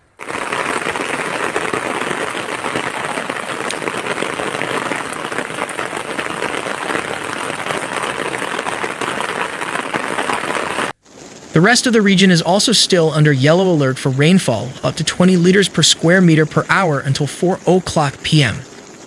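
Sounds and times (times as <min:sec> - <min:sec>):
heavy rain: 0:00.0 - 0:11.0.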